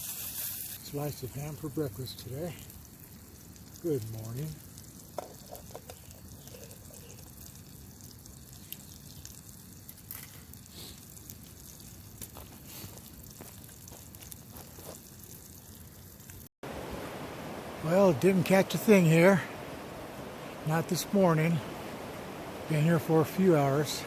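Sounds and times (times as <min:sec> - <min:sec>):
ham sizzling in a pan: 0:00.0 - 0:16.5.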